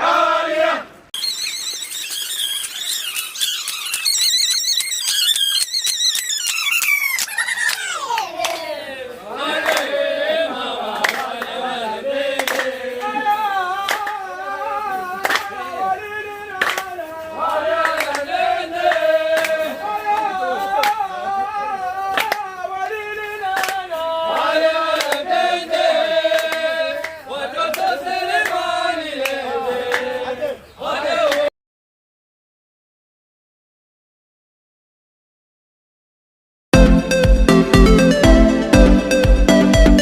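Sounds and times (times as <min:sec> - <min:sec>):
group of people singing: 0:08.5 - 0:31.5
hand claps keeping time: 0:09.6 - 0:10.0, 0:10.9 - 0:11.6, 0:12.3 - 0:13.2, 0:13.8 - 0:14.2, 0:15.2 - 0:15.6, 0:16.6 - 0:17.0, 0:17.8 - 0:19.6, 0:22.1 - 0:22.4, 0:23.5 - 0:25.3, 0:26.3 - 0:30.1.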